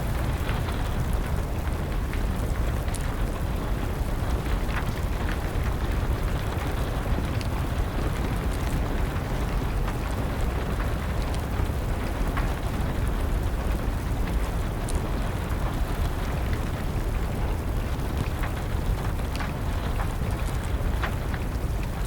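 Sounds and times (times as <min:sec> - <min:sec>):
rain rushing: 0:00.0 - 0:22.0
wood fire crackling and popping: 0:00.0 - 0:22.0.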